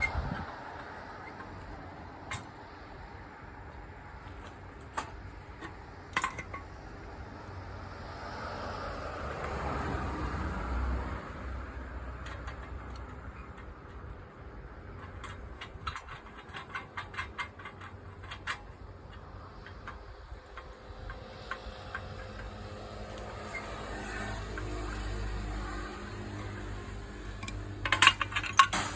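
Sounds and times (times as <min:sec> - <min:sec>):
steady background hum: 0:12.6 - 0:28.9.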